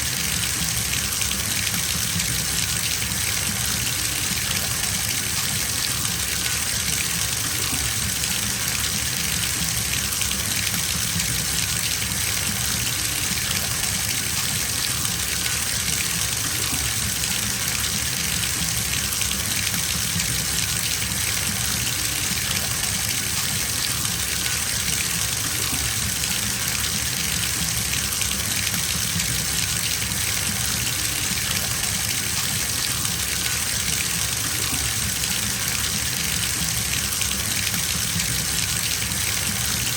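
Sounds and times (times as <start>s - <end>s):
water pouring into bathtub: 0.0s - 39.9s.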